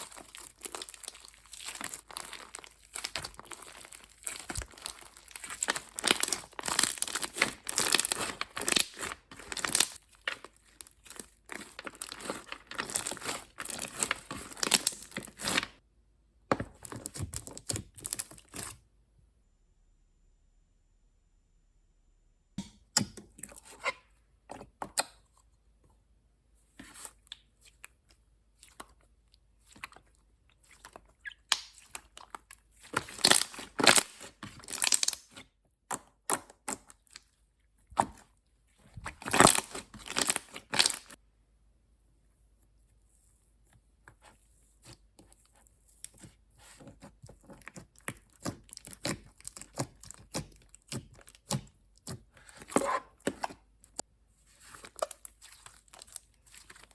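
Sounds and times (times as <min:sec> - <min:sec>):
slime crackling and popping: 0:00.0 - 0:15.8, 0:16.7 - 0:18.7, 0:29.6 - 0:37.3, 0:38.9 - 0:41.2, 0:45.3 - 0:54.0, 0:54.6 - 0:56.9.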